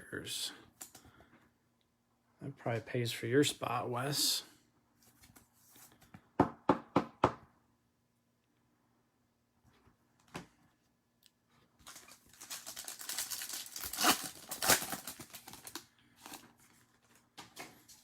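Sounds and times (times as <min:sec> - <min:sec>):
foil pack tearing and crinkling: 0:11.8 - 0:16.5.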